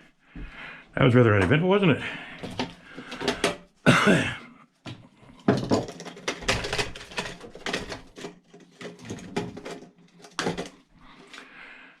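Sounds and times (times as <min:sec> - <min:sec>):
metal parts clanking and rattling: 0:05.4 - 0:11.4.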